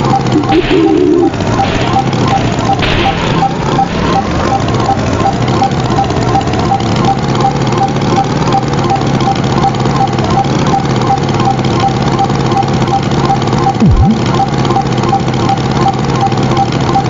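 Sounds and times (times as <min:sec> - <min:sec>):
tractor engine idling: 0:00.0 - 0:17.0.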